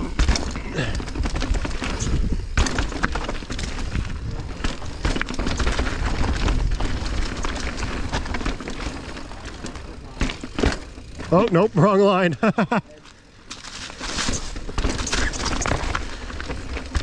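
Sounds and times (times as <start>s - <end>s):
bike clattering over rocks: 0.0s - 17.0s
wind rumble on microphone: 1.1s - 8.2s.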